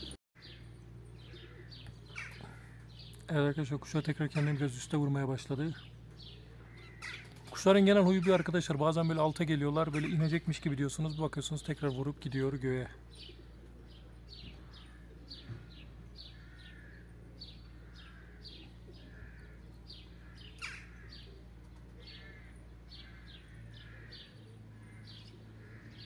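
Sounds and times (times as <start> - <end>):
small birds chirping: 0.0 - 26.0
soft low bird calls: 0.0 - 26.0.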